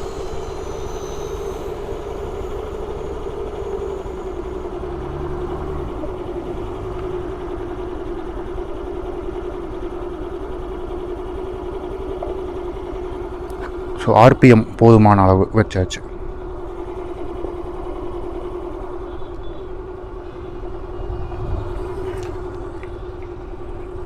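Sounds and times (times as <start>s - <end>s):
scooter engine idling: 0.0s - 14.2s, 16.0s - 24.0s.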